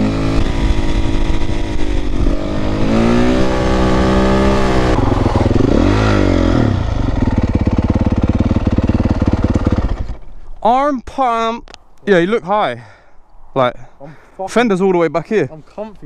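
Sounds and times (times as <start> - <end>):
dirt bike engine revving: 0.0 - 10.4.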